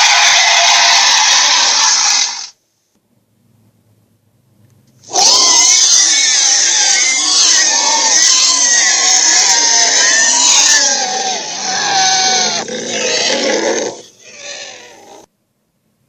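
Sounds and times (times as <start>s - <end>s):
monster roar: 0.0s - 2.4s, 5.1s - 15.3s.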